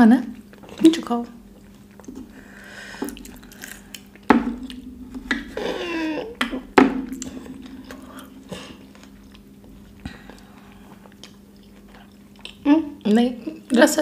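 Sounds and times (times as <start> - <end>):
chewing and mouth sounds: 0.4 - 5.8, 6.6 - 13.7
wavering vocal sound: 5.4 - 9.0.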